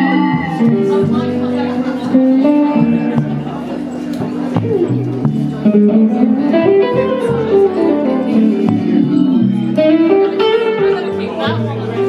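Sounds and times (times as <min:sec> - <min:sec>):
guitar playing single notes: 0:00.0 - 0:12.0
low bass notes: 0:00.0 - 0:12.0.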